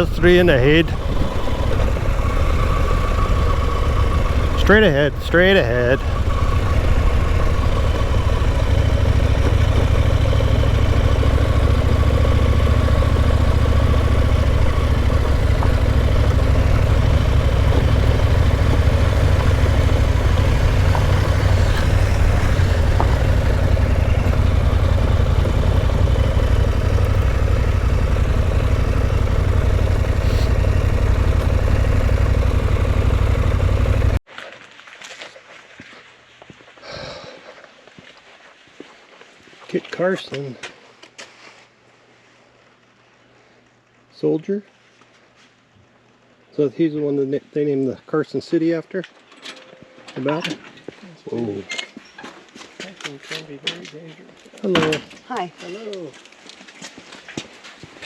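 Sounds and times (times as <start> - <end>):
motorcycle engine running: 0.0 - 34.2.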